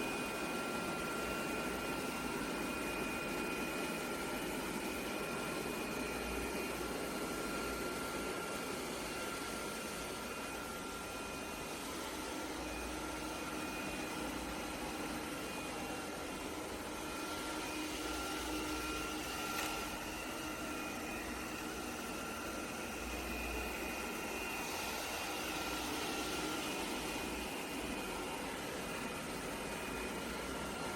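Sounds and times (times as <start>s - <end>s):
robot vacuum fan rush: 7.2s - 30.9s.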